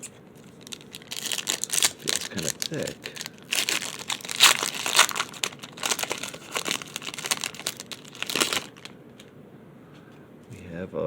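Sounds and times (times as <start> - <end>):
card pack wrapper crinkling: 0.4 - 9.3.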